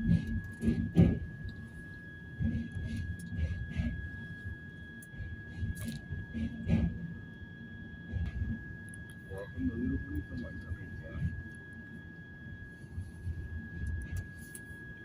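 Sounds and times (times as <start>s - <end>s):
train carriage rumble: 0.0s - 7.3s.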